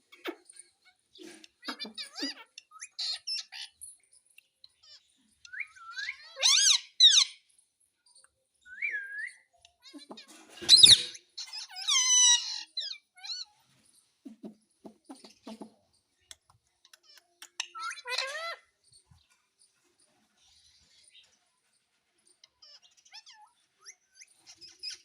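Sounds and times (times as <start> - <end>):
parrot chirps and whistles: 5.4 - 7.2
parrot screeching squawks: 5.7 - 7.4, 10.6 - 13.5, 17.7 - 18.7.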